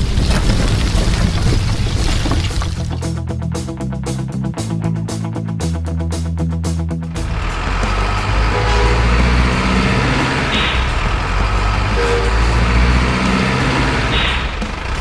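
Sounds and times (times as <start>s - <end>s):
truck engine rumbling: 0.0s - 3.5s, 7.0s - 15.0s.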